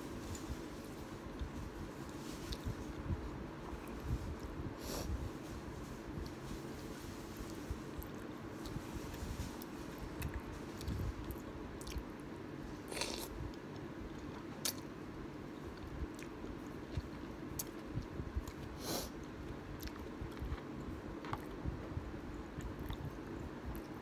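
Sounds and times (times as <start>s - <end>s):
chewing with wet mouth sounds: 9.6s - 12.2s, 15.7s - 20.7s, 22.5s - 24.0s
light crunching of food: 15.6s - 21.6s.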